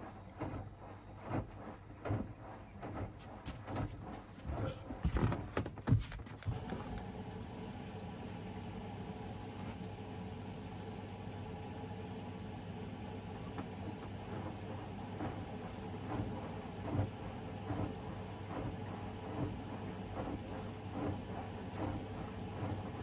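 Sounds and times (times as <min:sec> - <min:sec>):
laundry machine motor hum: 0:00.0 - 0:23.0.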